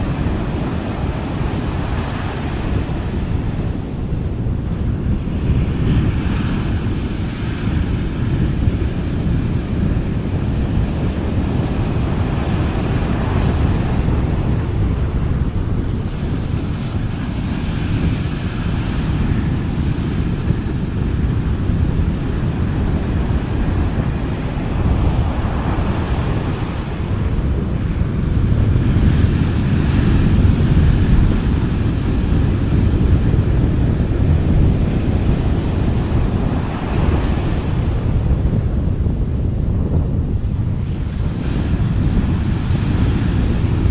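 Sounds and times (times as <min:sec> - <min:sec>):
waves washing onto beach: 0:00.0 - 0:43.9
wind on microphone: 0:00.0 - 0:43.9.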